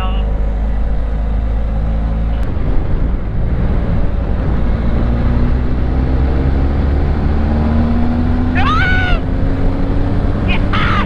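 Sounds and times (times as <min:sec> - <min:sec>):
wind noise on microphone: 0:02.4 - 0:08.4.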